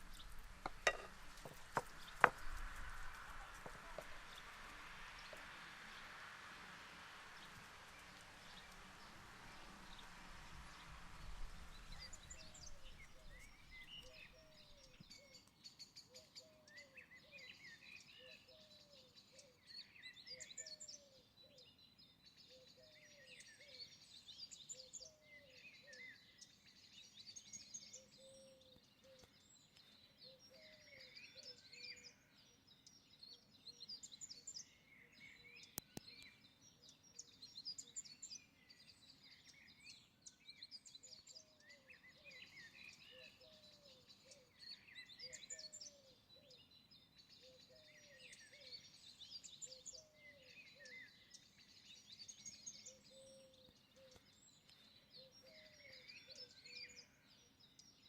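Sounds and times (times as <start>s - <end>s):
birds chirping and trilling: 0.0s - 6.2s, 7.4s - 16.0s, 25.4s - 58.0s
soft hiss: 0.0s - 15.0s.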